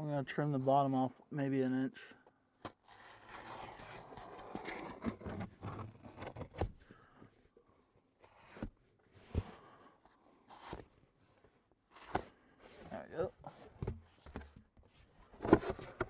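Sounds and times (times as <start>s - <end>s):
knife scraping through styrofoam: 2.7s - 6.8s.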